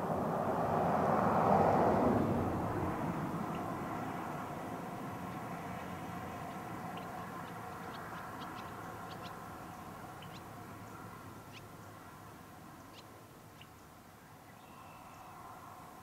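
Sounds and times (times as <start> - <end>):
birds chirping: 3.4 - 15.4.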